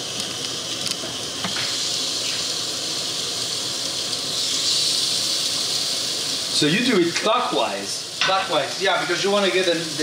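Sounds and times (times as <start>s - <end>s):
fish sizzling on grill pan: 0.0s - 10.0s.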